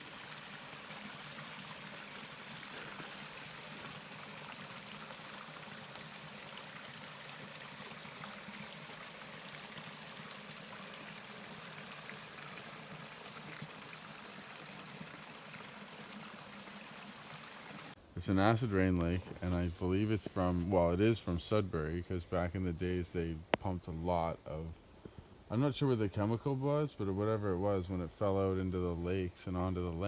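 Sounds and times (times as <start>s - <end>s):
running water rushing: 0.0s - 23.0s.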